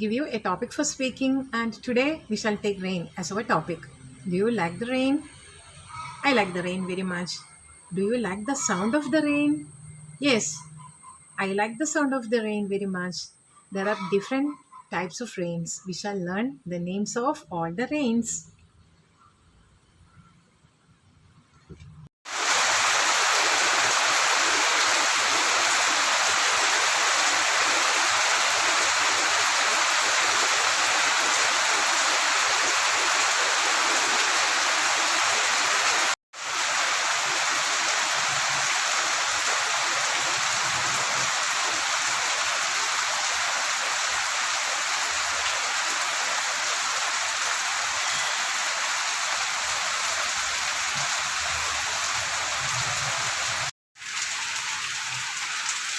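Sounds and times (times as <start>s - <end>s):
rain pouring: 22.2s - 55.9s.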